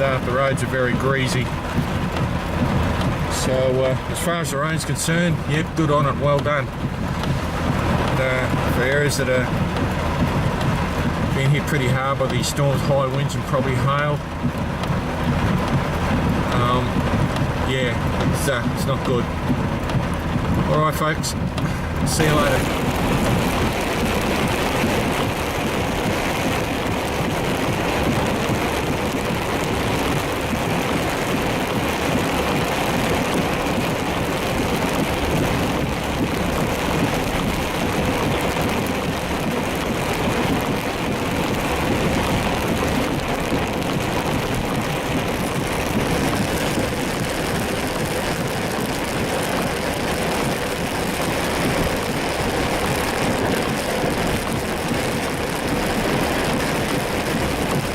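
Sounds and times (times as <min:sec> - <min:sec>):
rain on car: 0:00.0 - 0:57.9
road and engine noise: 0:00.0 - 0:57.9
tyres on wet road: 0:00.0 - 0:57.9.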